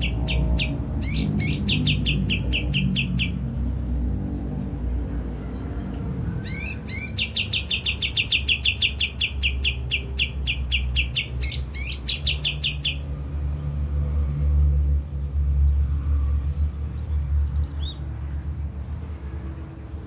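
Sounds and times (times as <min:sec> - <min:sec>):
bird singing trills: 0:00.0 - 0:03.5, 0:06.4 - 0:13.0, 0:17.4 - 0:18.0.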